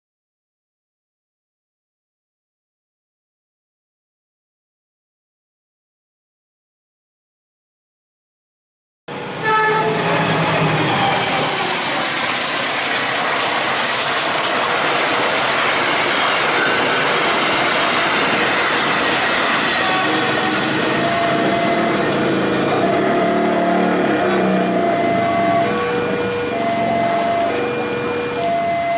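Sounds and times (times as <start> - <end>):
train passing at speed: 9.1 - 28.9.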